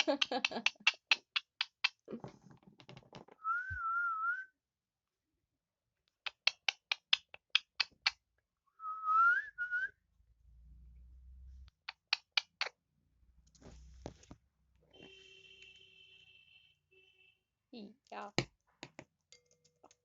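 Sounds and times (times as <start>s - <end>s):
sharp clicks: 0.0s - 2.1s, 6.1s - 8.2s, 11.7s - 12.7s.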